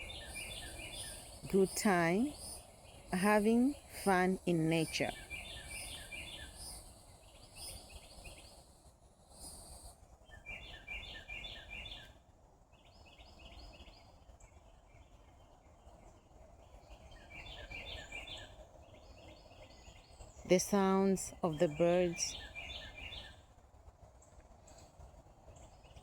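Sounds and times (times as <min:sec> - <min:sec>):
songbird chirping: 0:00.0 - 0:08.6, 0:16.6 - 0:23.5
low background hiss: 0:00.0 - 0:26.0.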